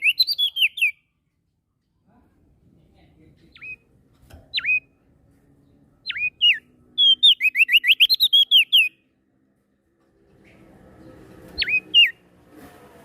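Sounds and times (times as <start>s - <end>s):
songbird whistling: 0.0s - 1.1s, 4.5s - 4.9s, 6.0s - 9.0s, 11.6s - 12.2s.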